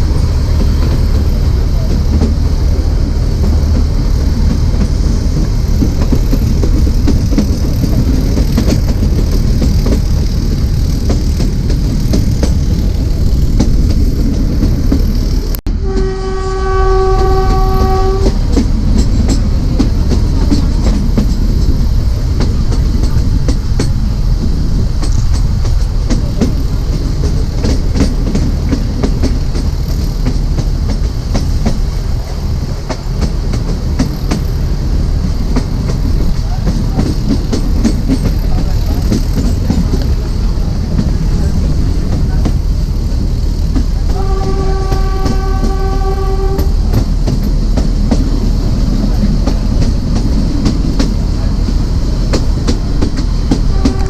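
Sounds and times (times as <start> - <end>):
train wheels rumbling on rail: 0.0 - 54.0
locomotive horn: 15.7 - 18.6, 44.0 - 46.9, 53.6 - 54.0.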